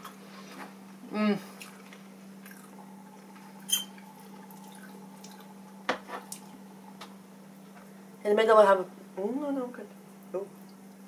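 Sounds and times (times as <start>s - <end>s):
steady low hum: 0.0s - 11.0s
person chewing: 1.5s - 6.7s.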